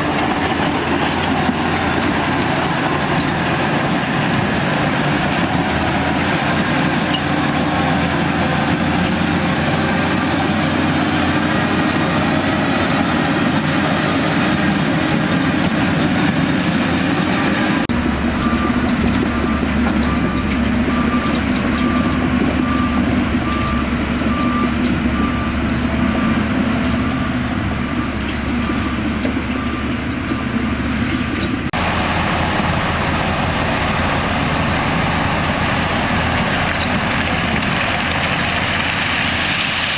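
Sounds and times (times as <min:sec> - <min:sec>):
diesel machinery engine running: 0:00.0 - 0:39.9
reversing alarm beeping: 0:18.2 - 0:30.8.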